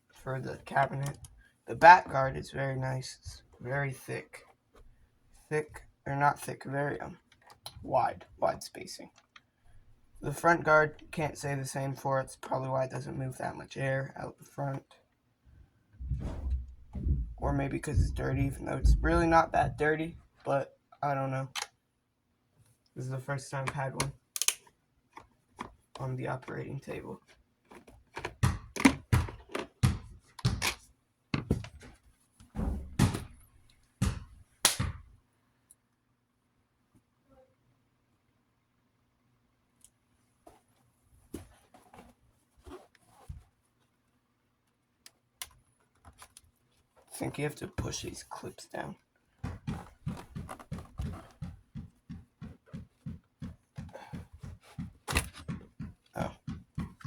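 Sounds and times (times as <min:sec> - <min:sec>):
plastic clips being worked loose: 0:24.0 - 0:25.7
loud plastic snap: 0:24.4 - 0:24.7, 0:34.6 - 0:34.9.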